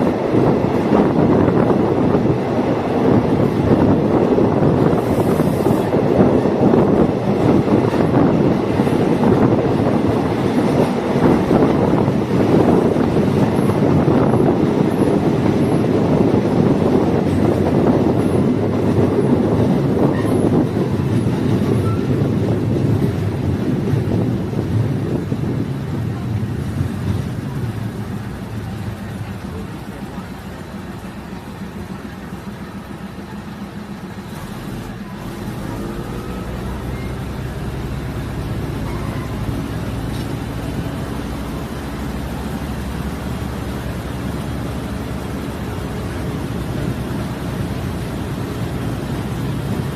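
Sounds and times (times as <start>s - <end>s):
train rumbling on rails: 0.0s - 49.9s.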